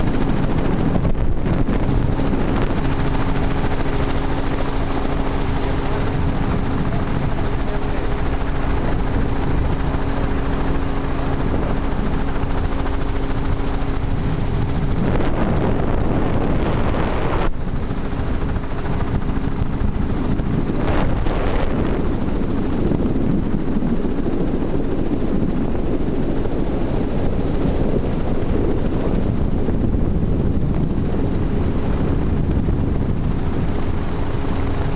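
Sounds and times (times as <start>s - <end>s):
heavy rushing noise: 0.0s - 17.6s, 20.0s - 22.7s
aircraft engine drone: 0.0s - 34.9s.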